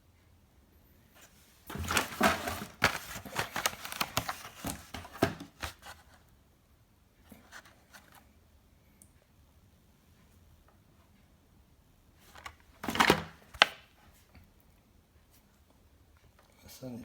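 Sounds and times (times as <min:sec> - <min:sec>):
plastic packaging crinkling and clicking: 0:01.7 - 0:06.2, 0:12.2 - 0:13.9.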